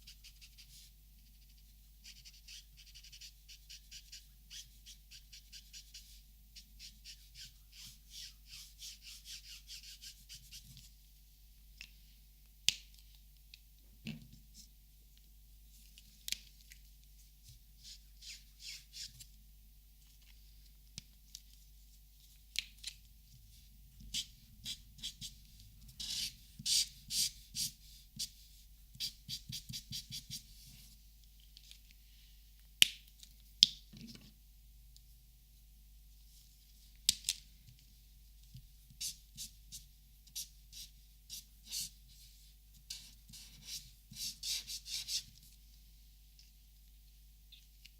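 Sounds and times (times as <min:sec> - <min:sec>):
marker scratching on paper: 0:00.0 - 0:06.2, 0:06.8 - 0:10.9, 0:17.8 - 0:19.2, 0:24.1 - 0:25.4, 0:26.0 - 0:30.6, 0:38.9 - 0:42.3, 0:42.9 - 0:45.3.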